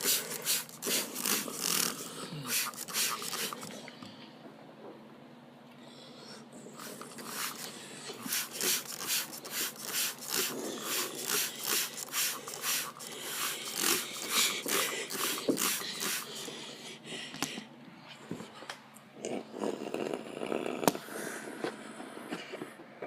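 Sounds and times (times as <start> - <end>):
car wash brushes swishing: 0.0 - 1.8, 6.8 - 14.4.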